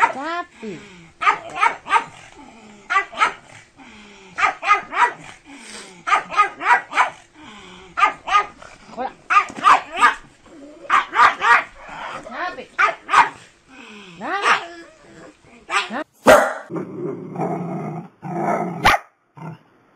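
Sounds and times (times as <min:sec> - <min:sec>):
dog barking excitedly: 0:00.0 - 0:00.3, 0:01.2 - 0:02.3, 0:02.9 - 0:03.6, 0:04.4 - 0:05.4, 0:06.0 - 0:07.3, 0:08.0 - 0:08.6, 0:09.3 - 0:10.3, 0:10.9 - 0:12.2, 0:12.8 - 0:13.4, 0:14.3 - 0:14.7, 0:15.7 - 0:16.7, 0:18.8 - 0:19.1.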